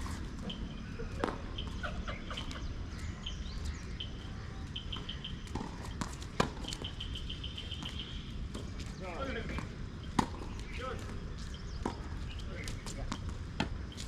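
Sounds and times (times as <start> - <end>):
bird chirping: 0.4 - 5.8, 6.4 - 12.9
tennis ball struck or bouncing: 5.5 - 6.8.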